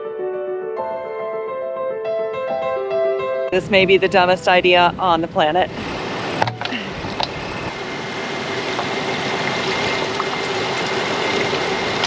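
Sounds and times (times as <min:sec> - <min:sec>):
liquid pouring from a bottle: 0:08.6 - 0:12.0.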